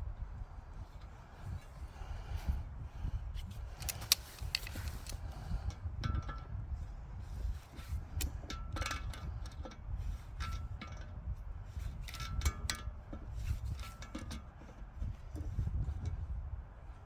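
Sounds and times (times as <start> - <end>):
steady low rumble: 0.0 - 12.2.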